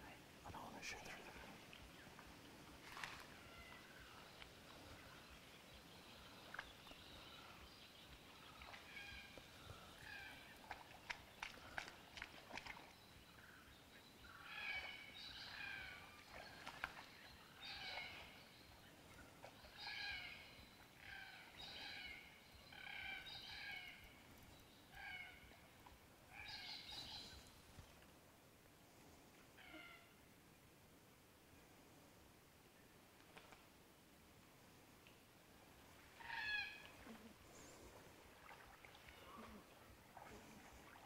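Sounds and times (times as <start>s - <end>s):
bird calling: 19.4s - 24.2s, 36.2s - 37.8s.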